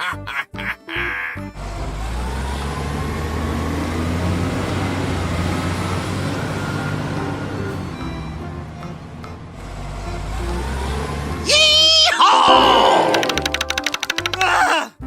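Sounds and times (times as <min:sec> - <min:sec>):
heavy truck engine running: 0:01.5 - 0:11.8
short high-pitched tone: 0:12.3 - 0:14.2.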